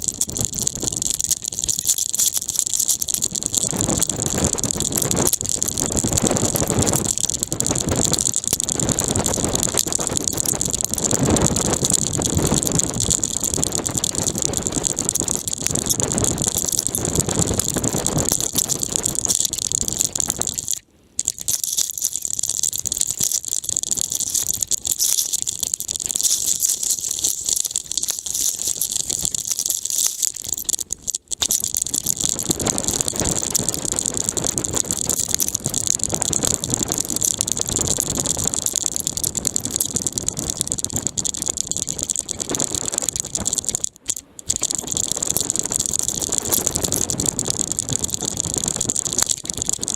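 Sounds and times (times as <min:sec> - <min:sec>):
camera harness rattling: 0:23.0 - 0:37.2.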